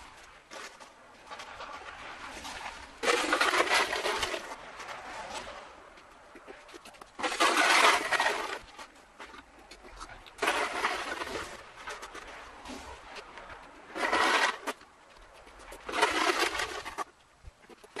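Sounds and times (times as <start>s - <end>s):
light scratching: 0.0s - 18.0s
scraper crunching ice: 0.5s - 5.6s, 7.2s - 14.8s, 15.5s - 17.1s.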